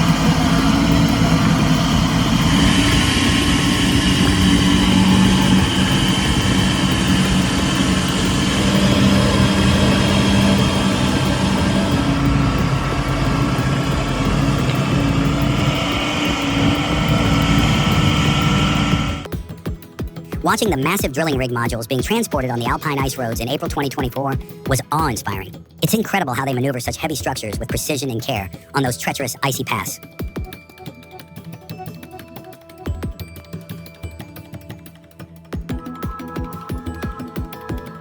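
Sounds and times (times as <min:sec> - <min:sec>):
high whine: 0:00.0 - 0:19.3
truck diesel engine running: 0:00.0 - 0:25.5.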